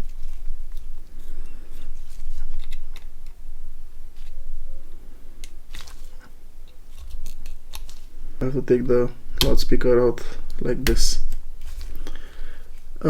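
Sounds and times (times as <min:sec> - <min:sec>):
plastic parts clicking and crunching: 0:02.3 - 0:03.4.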